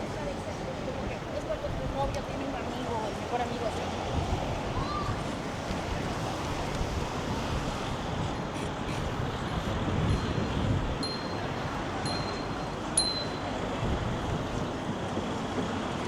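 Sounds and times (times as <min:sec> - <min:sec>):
traffic: 0:00.0 - 0:16.0
wind on microphone: 0:04.0 - 0:15.1.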